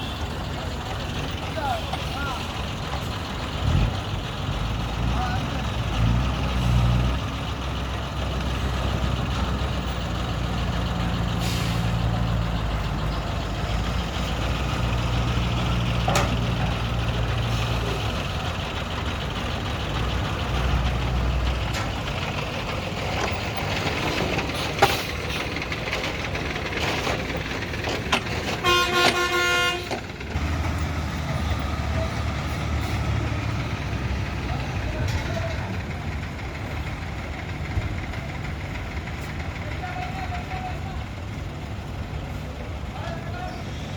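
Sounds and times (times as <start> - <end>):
heavy vehicle engine rumbling: 0.0 - 43.9
vehicle horn: 28.6 - 30.0.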